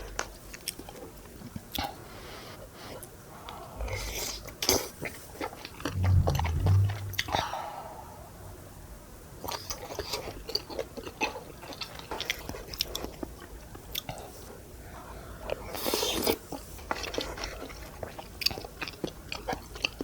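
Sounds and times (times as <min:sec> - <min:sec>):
low thuds: 0:05.9 - 0:07.5.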